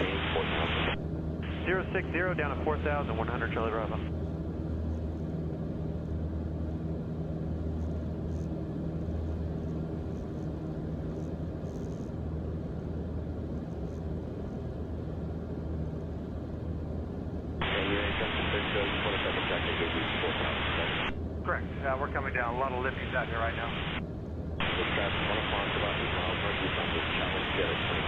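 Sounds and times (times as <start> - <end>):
aircraft engine drone in cabin: 0.0 - 28.0.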